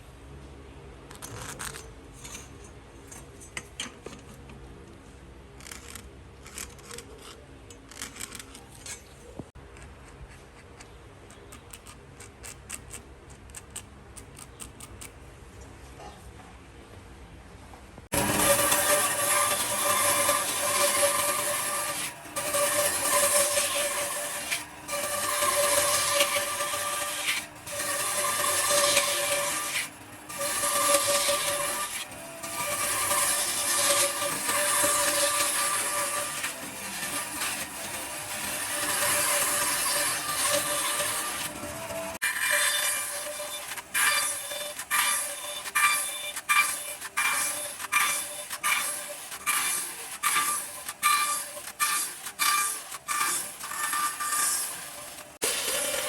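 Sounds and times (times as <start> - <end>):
power tool motor hum: 18.1 - 56.0.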